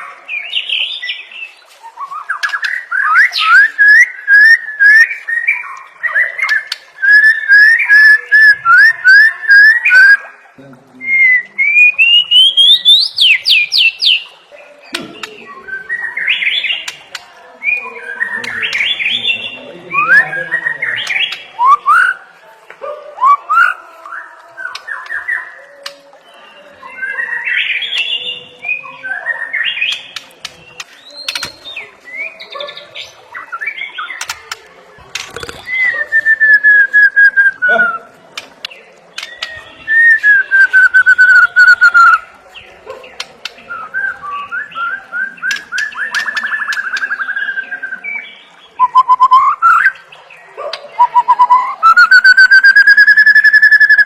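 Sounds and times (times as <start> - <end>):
bird singing whistled phrases: 0.4 - 10.3, 11.0 - 14.3, 35.4 - 38.1, 39.2 - 42.3, 43.6 - 50.0, 51.0 - 54.0.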